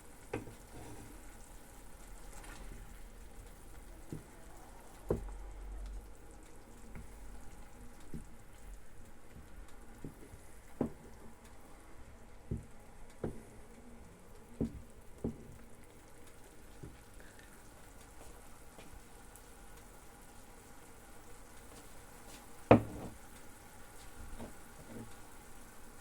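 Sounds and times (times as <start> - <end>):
food frying in a pan: 0.0 - 26.0.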